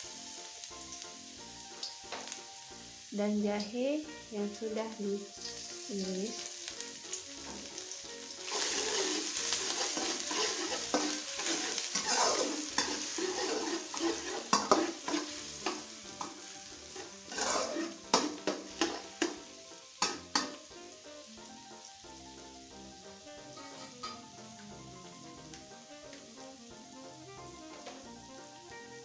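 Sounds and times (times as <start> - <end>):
garlic sizzling in hot oil: 0.0 - 29.0
spatula scraping a wok: 7.4 - 20.7, 23.3 - 24.3.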